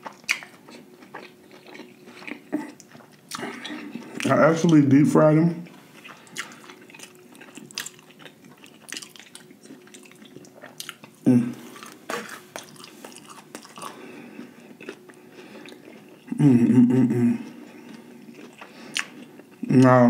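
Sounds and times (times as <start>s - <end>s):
person chewing crunchy food: 0.0s - 4.8s, 5.7s - 16.4s, 17.4s - 20.0s.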